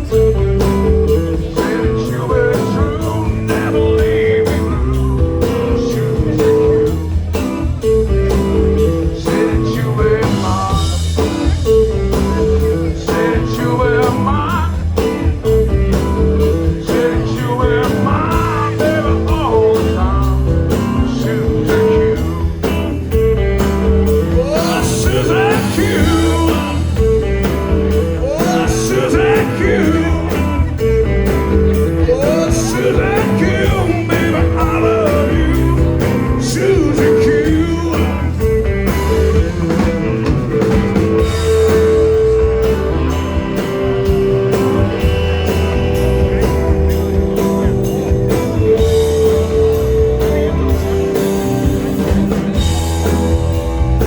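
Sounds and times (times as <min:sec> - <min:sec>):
person singing: 0:00.0 - 0:15.6, 0:16.4 - 0:22.8, 0:24.1 - 0:39.8
guitar: 0:00.0 - 0:54.0
steady drum beat: 0:00.0 - 0:54.0.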